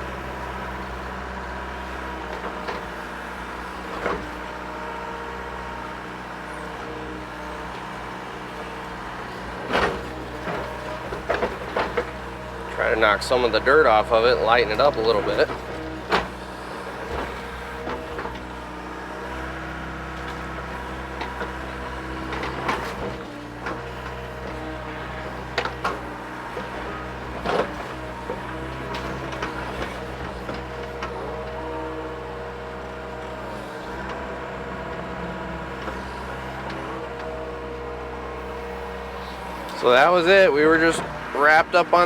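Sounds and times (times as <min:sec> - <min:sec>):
excavator diesel engine running: 0:00.0 - 0:42.0
hydraulics working: 0:00.0 - 0:42.0.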